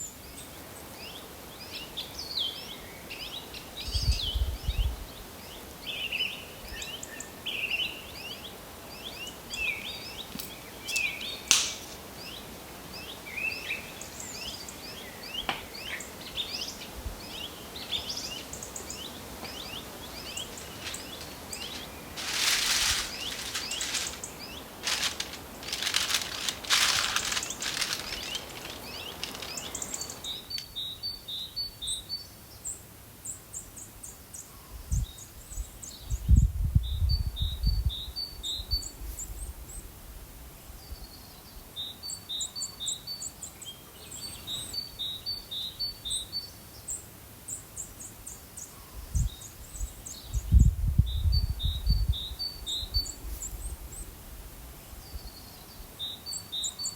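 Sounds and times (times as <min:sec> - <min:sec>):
songbirds chirping: 0:00.0 - 0:36.1, 0:40.8 - 0:54.2, 0:54.8 - 0:56.9
sharp click: 0:10.4 - 0:12.0
short rustling bursts: 0:19.6 - 0:30.4.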